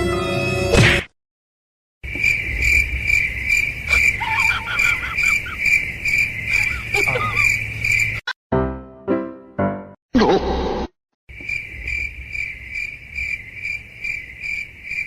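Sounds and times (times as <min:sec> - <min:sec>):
orchestral music: 0:00.0 - 0:00.7, 0:08.5 - 0:10.0
cricket chirping: 0:02.0 - 0:08.2, 0:11.3 - 0:15.0.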